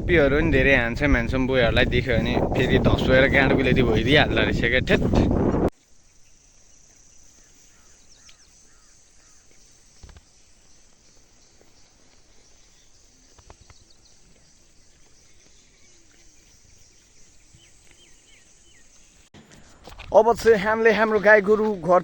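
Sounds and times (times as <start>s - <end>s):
faint bird chirps: 5.8s - 19.8s.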